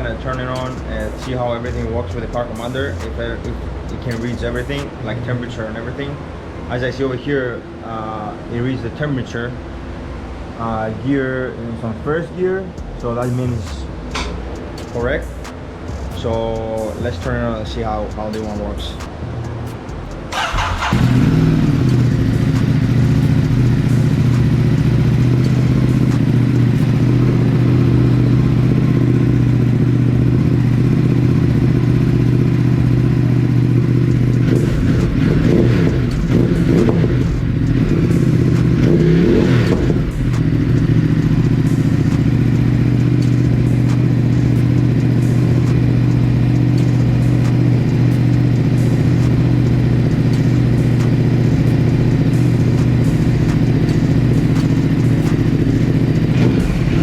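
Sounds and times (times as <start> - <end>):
motorcycle engine idling: 0.0 - 5.7, 12.8 - 57.0
motorcycle engine cranking: 18.2 - 57.0.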